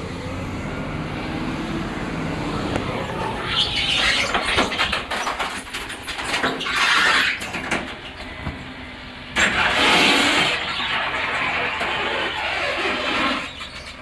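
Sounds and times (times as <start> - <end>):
truck engine running: 0.0 - 6.4, 7.5 - 14.0
clanks and knocks: 4.0 - 8.6.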